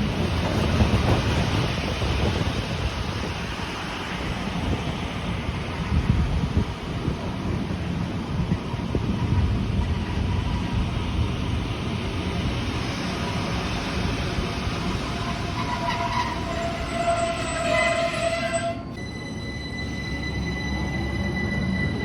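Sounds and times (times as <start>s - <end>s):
train rumbling: 0.0s - 22.0s
high ringing tone: 16.5s - 22.0s.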